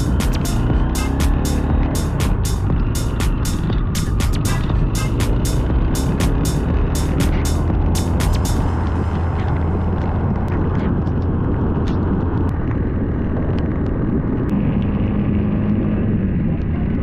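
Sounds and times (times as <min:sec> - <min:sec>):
high steady engine note: 0:00.0 - 0:13.2
motorcycle engine drone: 0:00.0 - 0:17.0
wind and road noise: 0:00.0 - 0:17.0.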